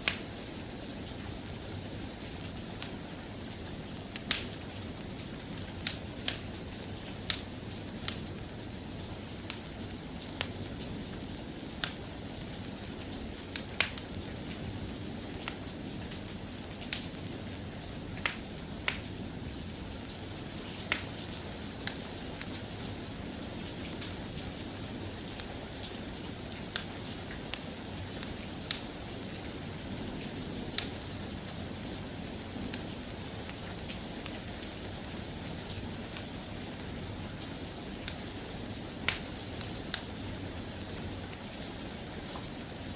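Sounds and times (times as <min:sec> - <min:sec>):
soft rain: 0:00.0 - 0:42.9
sharp ticks and pops: 0:04.1 - 0:04.6.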